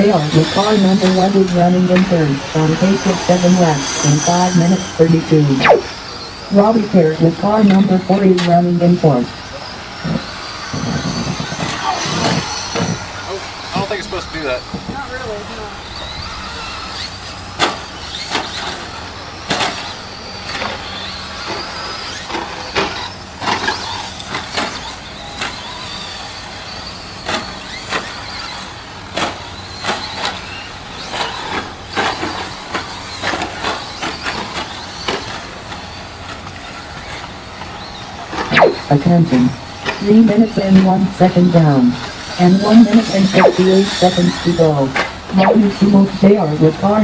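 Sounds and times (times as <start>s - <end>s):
rc truck motors whining: 0.0s - 47.0s.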